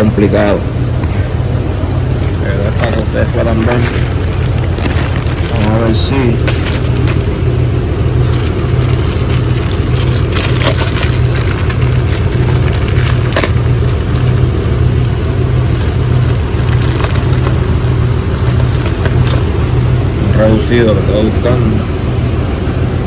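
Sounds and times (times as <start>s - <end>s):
car engine idling: 0.0s - 23.0s
metallic tool clinks: 6.4s - 7.2s, 9.8s - 14.3s, 18.4s - 19.6s.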